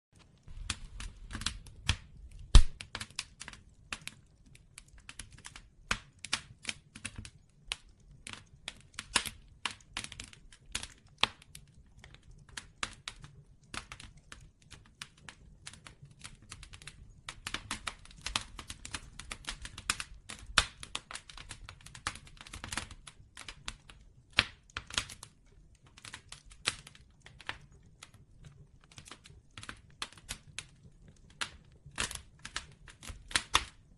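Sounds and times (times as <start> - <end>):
bonfire crackling: 0.2 - 33.9.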